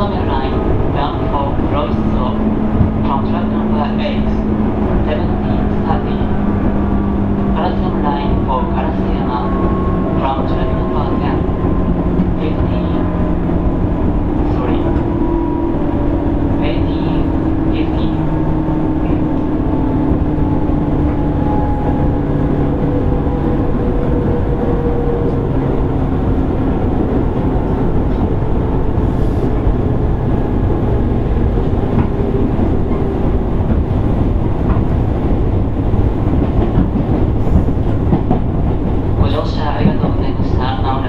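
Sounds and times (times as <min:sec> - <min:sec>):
train running rumble: 0:00.0 - 0:41.0.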